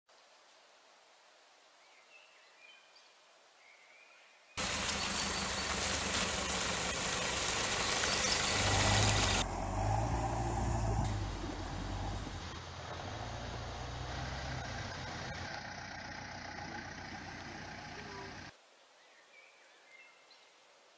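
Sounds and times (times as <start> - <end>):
tyre and road noise: 4.6 - 18.5
vehicle engine hum: 4.6 - 18.5.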